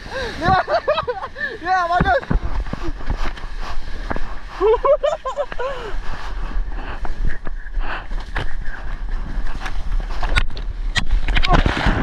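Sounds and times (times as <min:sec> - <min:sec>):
rushing water: 0:00.0 - 0:07.2
wind buffeting microphone: 0:00.0 - 0:12.0
sharp splashes and knocks: 0:10.3 - 0:12.0.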